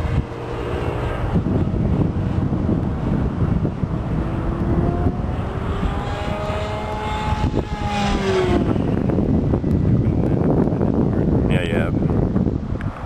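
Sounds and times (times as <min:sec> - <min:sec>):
model plane motor whine passing: 0:00.0 - 0:09.1
wind on microphone: 0:00.0 - 0:13.0.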